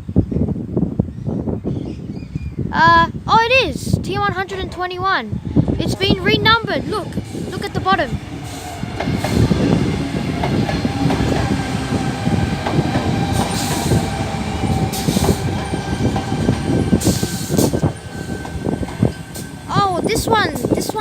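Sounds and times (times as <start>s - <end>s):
train wheels clattering on rails: 6.8s - 21.0s.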